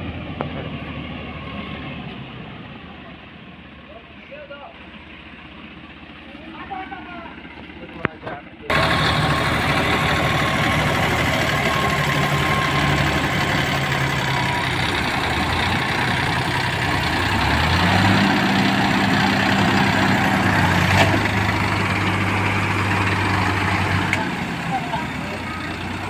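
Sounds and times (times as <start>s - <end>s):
tractor engine running and revving: 0.0s - 3.8s, 7.4s - 26.0s.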